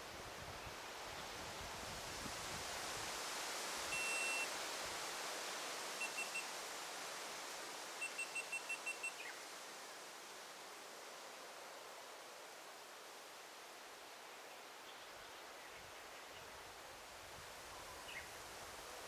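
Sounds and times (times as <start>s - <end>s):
forest ambience hiss: 0.0s - 19.0s
high pure beeping tone: 4.0s - 4.5s.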